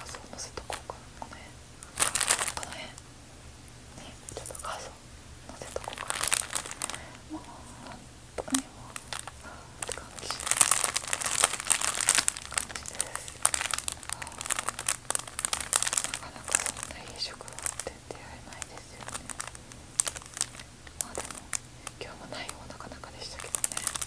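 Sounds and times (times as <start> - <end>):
bag crinkling by hand: 1.8 - 2.9, 5.5 - 7.3, 8.5 - 22.1, 23.0 - 24.0.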